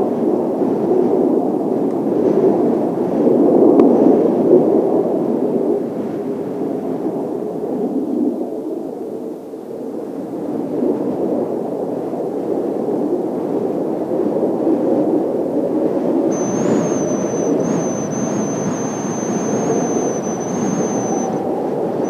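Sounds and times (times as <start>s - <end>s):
high turbine whine: 16.3s - 22.0s
jet roar overhead: 16.3s - 22.0s.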